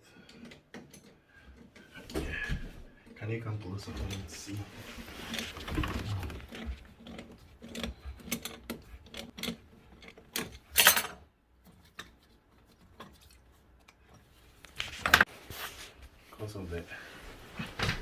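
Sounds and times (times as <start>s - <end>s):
tools clicking and knocking: 0.2s - 1.9s, 5.8s - 14.3s.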